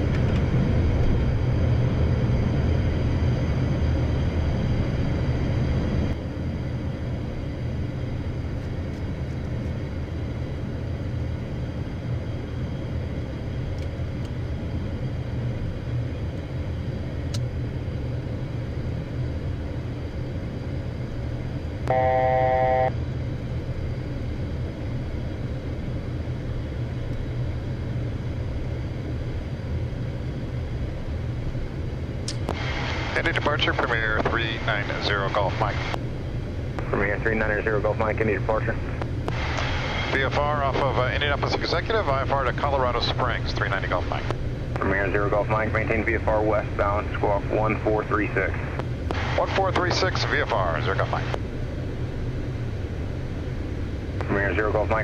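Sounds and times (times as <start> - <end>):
jet cockpit engine noise: 0.0 - 55.0
electronic cockpit tone: 21.8 - 23.0.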